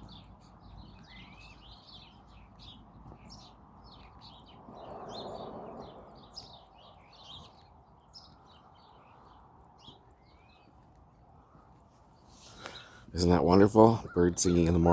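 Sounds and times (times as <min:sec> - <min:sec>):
songbirds chirping: 0:00.0 - 0:14.9
rushing noise: 0:04.7 - 0:06.4.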